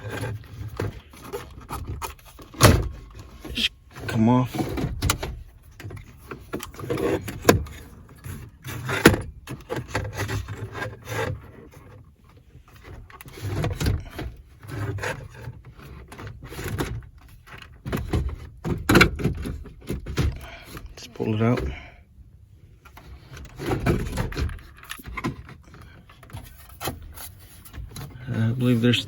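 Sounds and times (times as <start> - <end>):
unit scraping against dash: 22.8 - 29.0.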